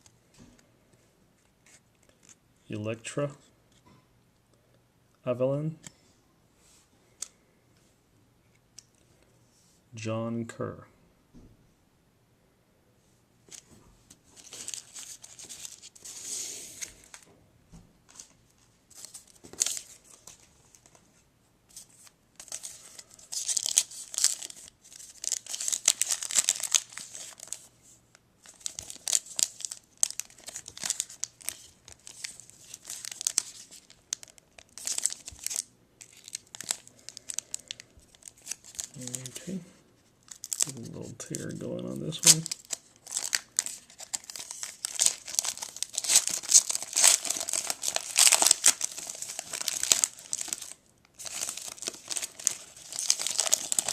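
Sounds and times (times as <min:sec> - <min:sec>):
wrapper tearing and crinkling: 0:14.4 - 0:16.2, 0:22.4 - 0:27.7, 0:28.4 - 0:39.5, 0:40.2 - 0:40.9, 0:42.0 - 0:53.9.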